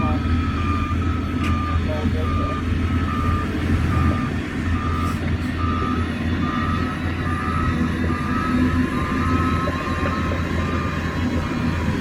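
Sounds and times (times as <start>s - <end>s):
diesel engine rumble: 0.0s - 12.0s
reversing alarm beeping: 0.0s - 12.0s.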